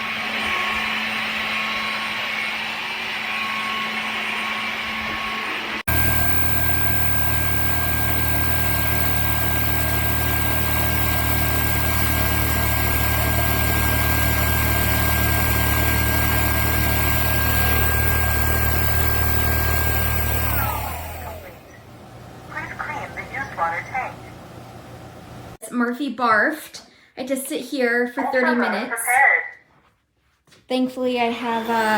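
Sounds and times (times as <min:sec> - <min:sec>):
vacuum mop motor humming and whining: 0:00.0 - 0:23.4, 0:31.2 - 0:31.9.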